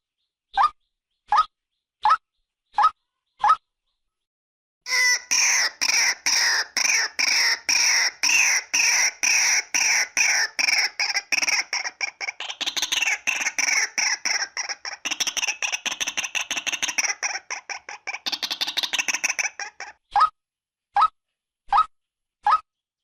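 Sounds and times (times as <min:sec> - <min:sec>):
waterhen calling harsh notes: 0:04.9 - 0:19.9.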